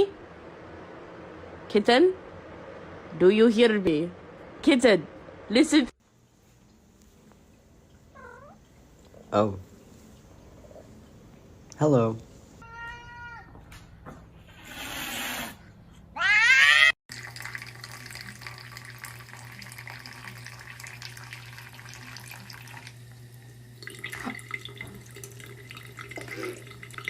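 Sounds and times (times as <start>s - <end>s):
cat yowling: 8.2s - 8.6s, 12.6s - 13.6s, 16.2s - 17.0s.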